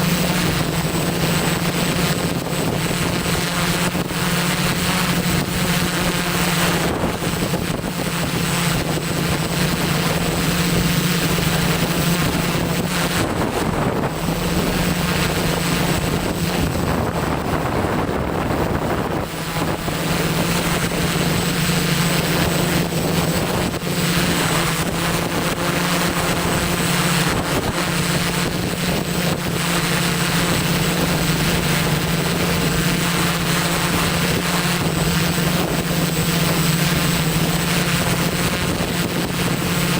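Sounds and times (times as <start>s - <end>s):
drone motors humming: 0.0s - 39.9s
wind buffeting microphone: 0.0s - 39.9s.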